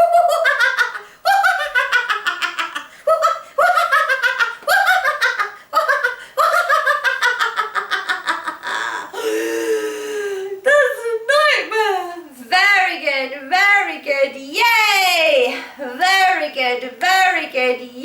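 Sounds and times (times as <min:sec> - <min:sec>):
woman laughing: 0:00.0 - 0:09.3.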